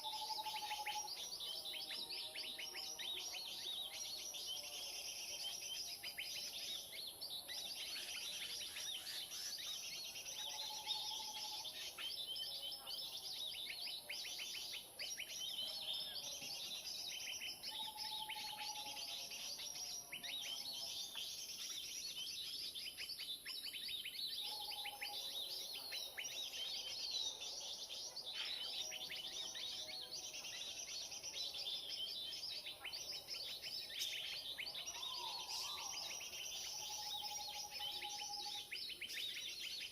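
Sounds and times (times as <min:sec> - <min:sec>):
many small birds chattering: 0:00.0 - 0:39.9.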